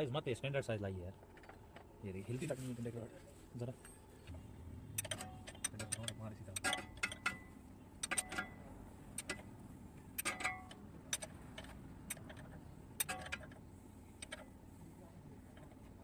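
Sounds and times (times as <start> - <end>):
hand tools clicking on metal: 5.0 - 7.4, 8.0 - 8.5, 10.2 - 13.6.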